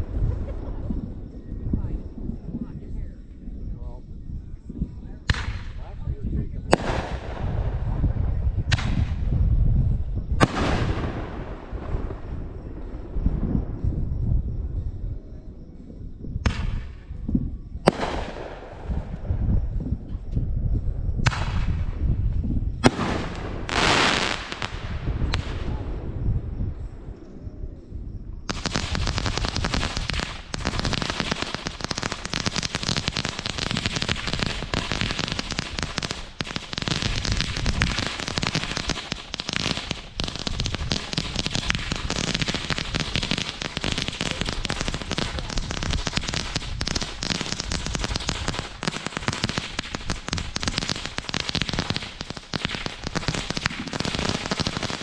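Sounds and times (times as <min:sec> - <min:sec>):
firework crack: 0:05.3 - 0:06.0, 0:06.7 - 0:09.5, 0:10.3 - 0:13.4, 0:17.9 - 0:19.3, 0:21.2 - 0:22.1, 0:22.8 - 0:26.2, 0:28.5 - 0:55.0
firework hissing burst: 0:22.8 - 0:25.0, 0:28.5 - 0:55.0
rapid firework crackling: 0:22.8 - 0:25.6, 0:28.5 - 0:55.0.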